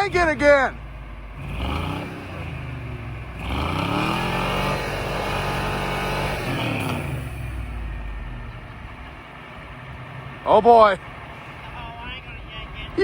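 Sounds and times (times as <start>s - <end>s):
vehicle engine revving: 0.0s - 13.0s.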